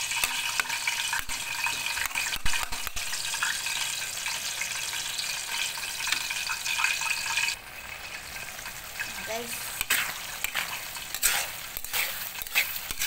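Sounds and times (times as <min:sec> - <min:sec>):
stir-fry sizzling in wok: 0:00.0 - 0:13.0
metal spatula stirring: 0:09.0 - 0:13.0.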